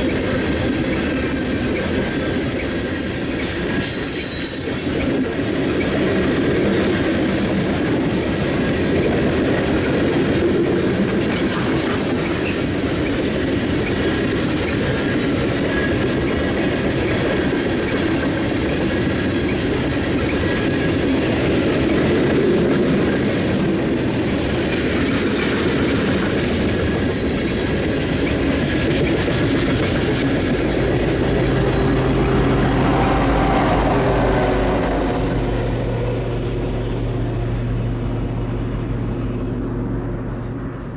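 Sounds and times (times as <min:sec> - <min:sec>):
train wheel squeals: 0:00.0 - 0:06.0, 0:11.2 - 0:22.0
train wheels clicking over rail joints: 0:00.0 - 0:33.5
steady engine hum: 0:28.6 - 0:40.9.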